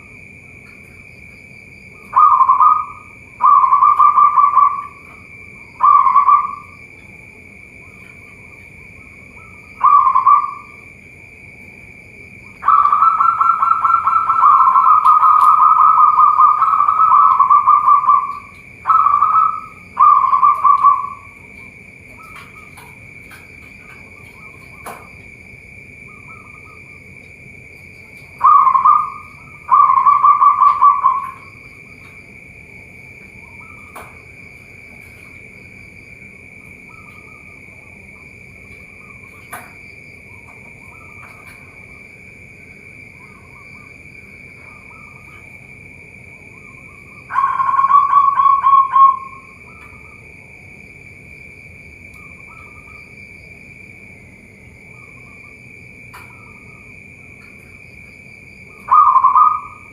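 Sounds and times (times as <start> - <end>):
doves cooing: 0.0 - 50.8, 54.3 - 59.9
steady high-pitched drone: 0.0 - 59.9.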